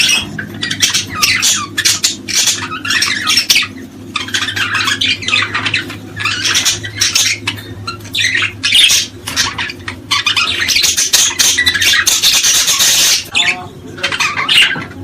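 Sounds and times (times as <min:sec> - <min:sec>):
small birds chirping and squawking: 0:00.0 - 0:15.0.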